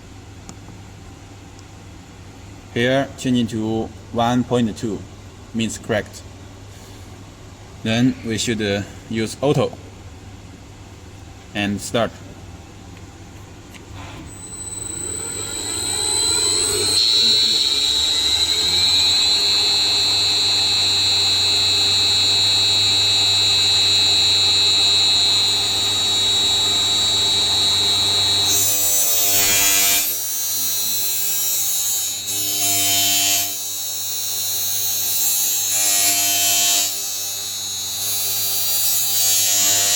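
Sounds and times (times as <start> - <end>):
grinder motor whine: 14.0 - 30.9
grinding wheel hiss on blade: 14.2 - 22.6.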